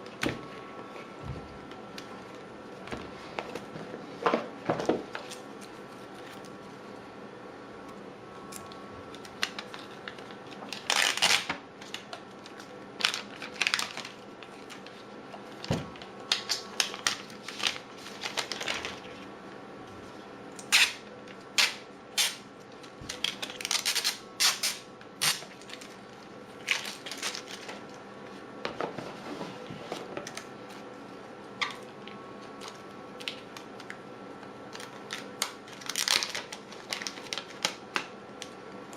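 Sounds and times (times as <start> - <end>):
faint hum: 0.0 - 38.9
cardboard and plastic crinkling: 9.1 - 19.2, 26.6 - 27.9, 34.8 - 37.8.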